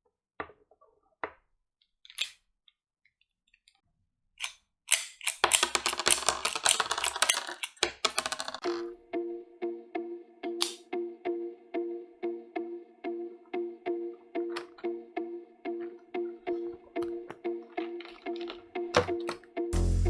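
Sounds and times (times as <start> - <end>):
plastic clicking and crackling: 4.4 - 8.6
music with sustained notes: 8.6 - 20.0.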